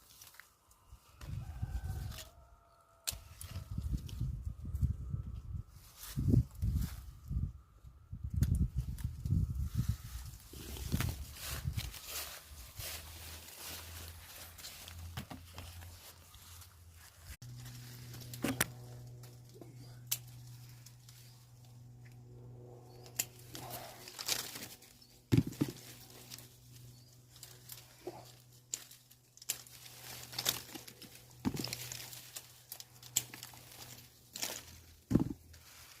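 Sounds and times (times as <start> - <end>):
leaves and branches rustling: 0.0 - 7.5, 8.2 - 22.0, 22.8 - 36.0
fruit snapping off branches: 3.0 - 3.6, 18.2 - 21.0, 23.1 - 26.4, 28.7 - 35.4
steady low hum: 3.1 - 36.0.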